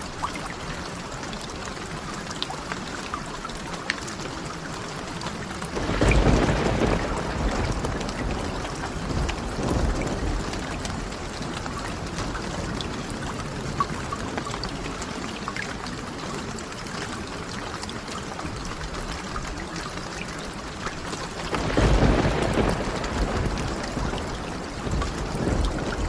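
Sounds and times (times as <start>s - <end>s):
steady rain: 0.0s - 26.0s
small crackles: 3.4s - 26.0s
low rumble of thunder: 5.7s - 15.0s, 21.1s - 26.0s.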